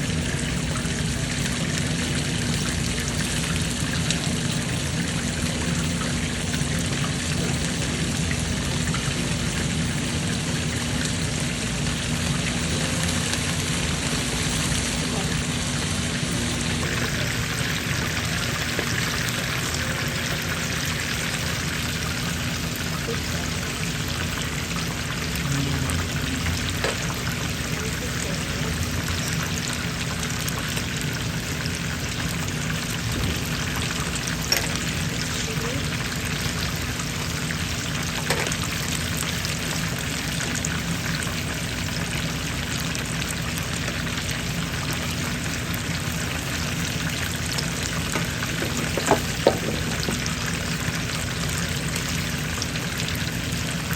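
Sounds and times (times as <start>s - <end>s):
fish sizzling in hot oil: 0.0s - 53.9s
oil popping: 36.1s - 53.9s.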